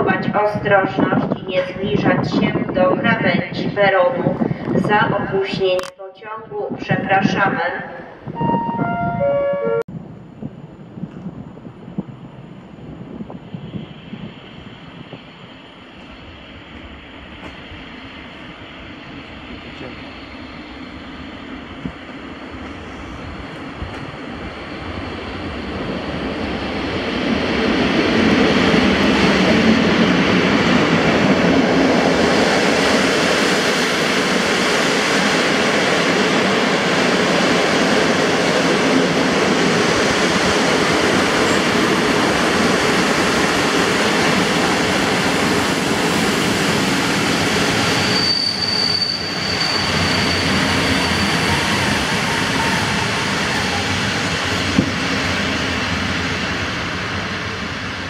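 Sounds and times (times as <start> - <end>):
train wheels rumbling on rails: 9.8 - 58.0
high wheel squeal: 47.7 - 53.7.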